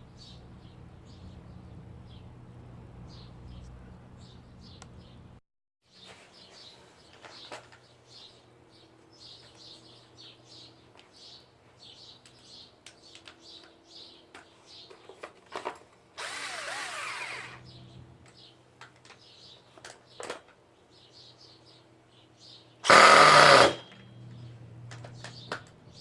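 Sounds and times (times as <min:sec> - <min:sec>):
small electric motor whirring: 0:16.2 - 0:17.7, 0:22.8 - 0:23.8.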